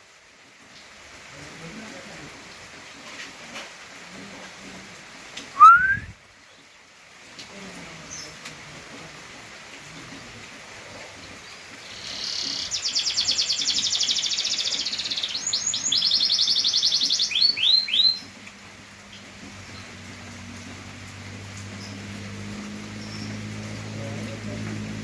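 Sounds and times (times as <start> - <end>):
canary singing: 11.9 - 18.3.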